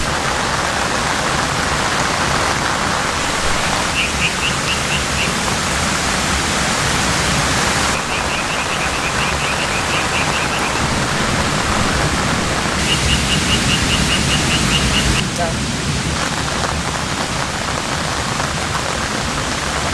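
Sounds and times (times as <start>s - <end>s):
rushing falling water: 0.0s - 19.9s
small animal chirping: 3.8s - 5.4s, 8.0s - 10.9s.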